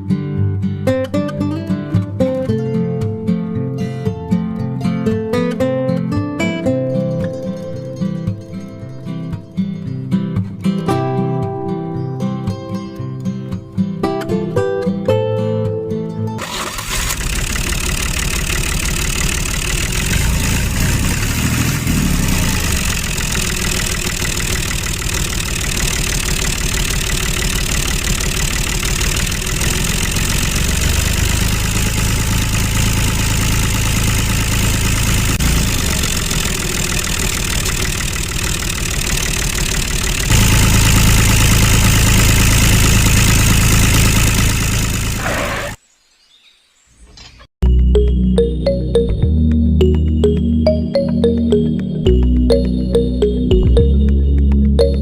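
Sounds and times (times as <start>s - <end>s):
engine running steadily: 16.4s - 45.8s.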